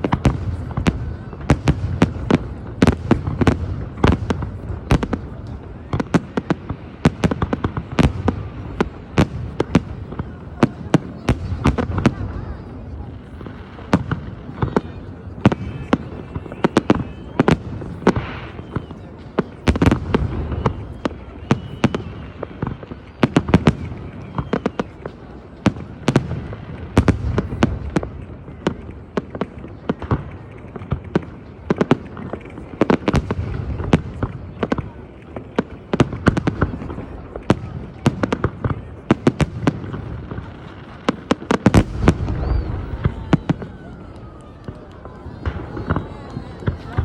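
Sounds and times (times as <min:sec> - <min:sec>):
fireworks bangs: 0:00.0 - 0:47.0
rumble of distant explosions: 0:17.5 - 0:47.0.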